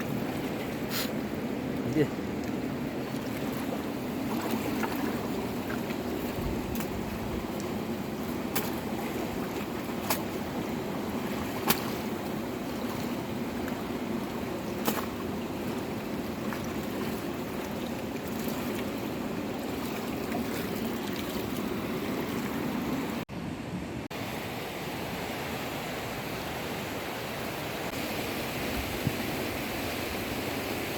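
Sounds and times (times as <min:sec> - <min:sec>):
flowing water rushing: 0:00.0 - 0:23.2.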